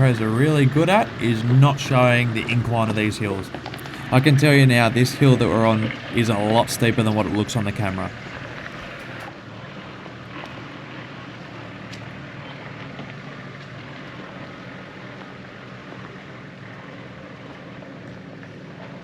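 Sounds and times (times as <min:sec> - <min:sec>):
engine running under load: 0:00.0 - 0:19.0.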